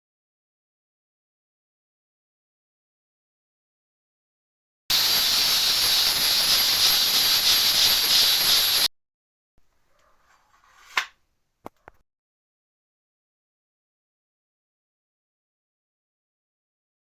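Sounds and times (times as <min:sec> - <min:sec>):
loud steady hiss: 0:04.9 - 0:08.9.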